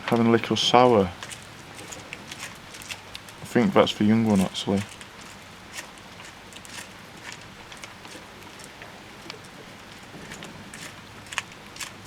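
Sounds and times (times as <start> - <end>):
raindrops ticking: 0.0 - 12.0
heavy rain hissing: 3.4 - 4.9.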